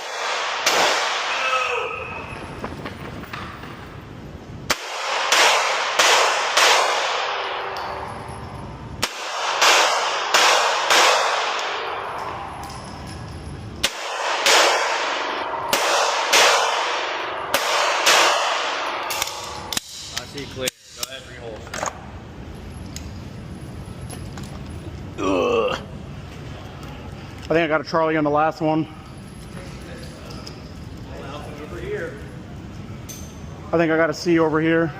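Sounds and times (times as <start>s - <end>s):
handgun shots with echo: 0.0s - 1.4s, 4.7s - 8.0s, 9.0s - 12.3s, 13.8s - 20.2s.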